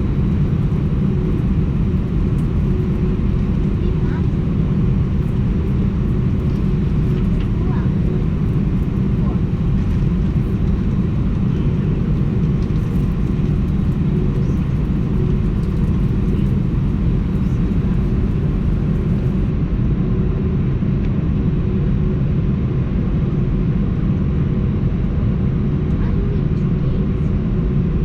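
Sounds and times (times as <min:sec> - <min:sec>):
faint steady hum: 0:00.0 - 0:19.5
rushing air: 0:00.0 - 0:19.5
airplane engines rumbling: 0:00.0 - 0:20.9.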